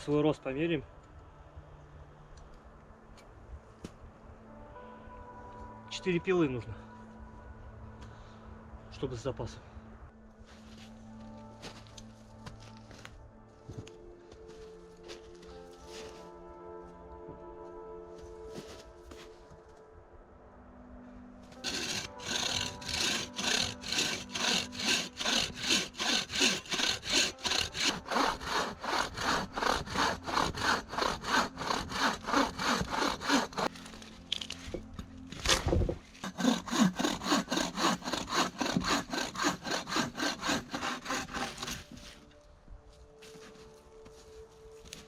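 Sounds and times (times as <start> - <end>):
hand saw cutting wood: 21.6 - 33.9, 36.2 - 42.2.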